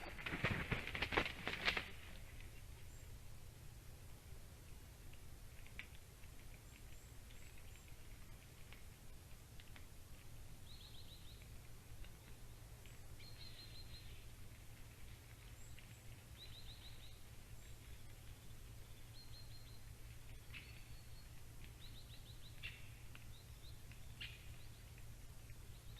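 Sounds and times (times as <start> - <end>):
steady low hum: 0.0 - 25.9
small birds chirping: 1.6 - 25.9.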